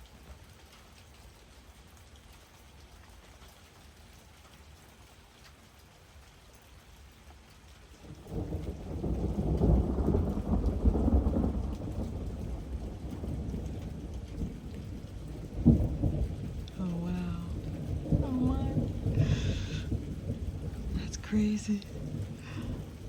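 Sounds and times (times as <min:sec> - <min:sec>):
steady rain falling: 0:00.0 - 0:23.0
thunder rumbling: 0:08.3 - 0:23.0.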